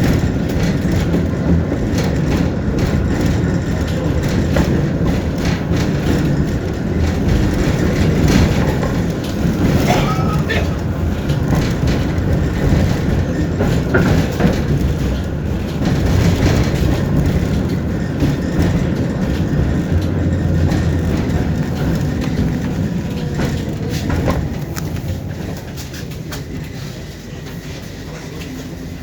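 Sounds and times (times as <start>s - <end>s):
tram rumbling on rails: 0.0s - 29.0s.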